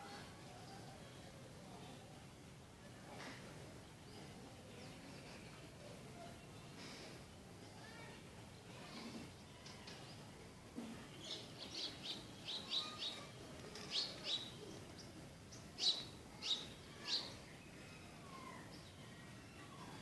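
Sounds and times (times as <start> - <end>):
small birds chirping: 11.0 - 20.0.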